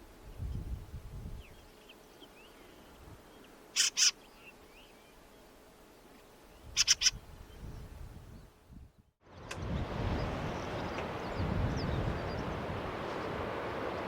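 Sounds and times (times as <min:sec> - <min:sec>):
faint small bird chirps: 0:01.4 - 0:05.2, 0:06.6 - 0:07.9
bird harsh raspy calls: 0:03.8 - 0:04.5, 0:06.6 - 0:07.2.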